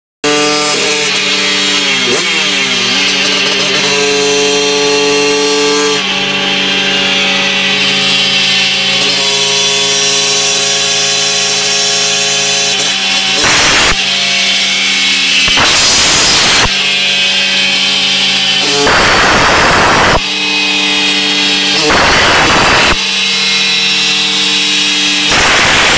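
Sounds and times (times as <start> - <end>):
moped engine at high revs: 0.2 - 25.9.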